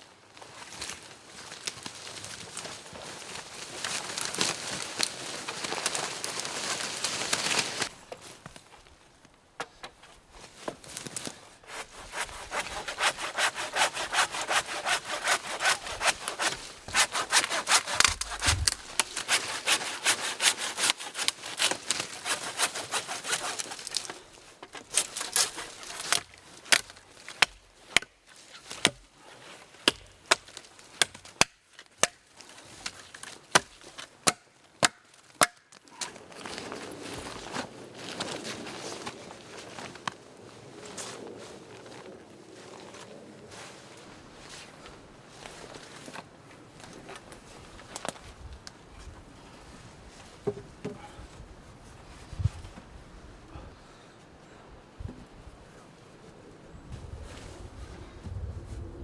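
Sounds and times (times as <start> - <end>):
hand saw cutting wood: 11.6 - 24.2, 24.8 - 27.6.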